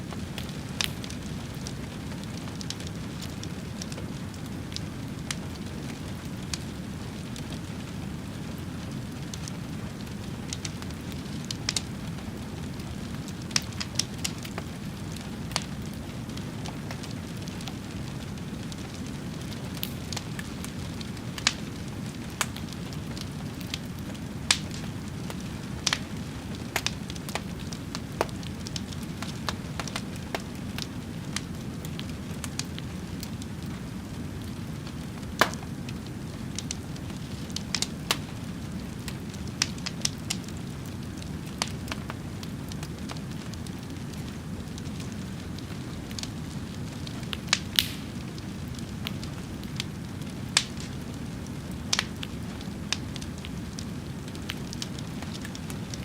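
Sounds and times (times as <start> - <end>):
fire crackling and popping: 0.0 - 56.0
fire rumbling: 0.0 - 56.0.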